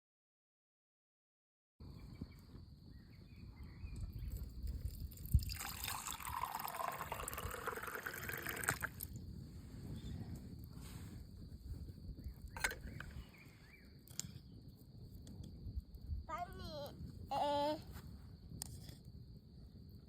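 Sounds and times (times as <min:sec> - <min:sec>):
water trickling: 0:04.9 - 0:09.1.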